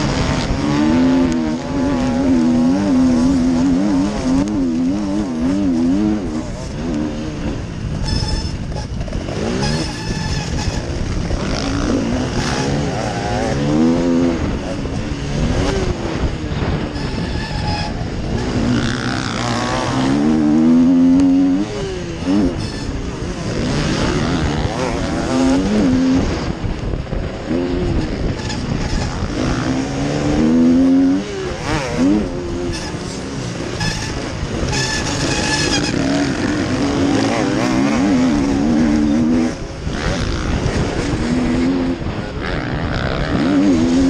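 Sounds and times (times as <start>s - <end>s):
motocross bike engine revving: 0.0s - 44.0s.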